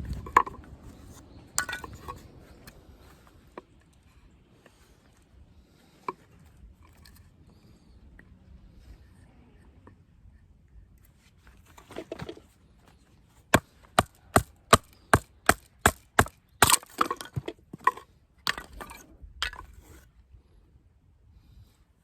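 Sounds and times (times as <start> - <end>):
wood cracking as it splits: 13.6 - 17.4.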